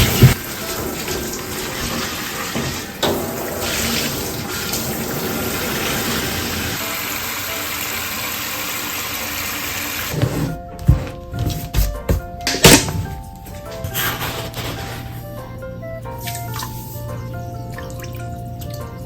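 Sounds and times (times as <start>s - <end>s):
water running: 0.0s - 11.1s.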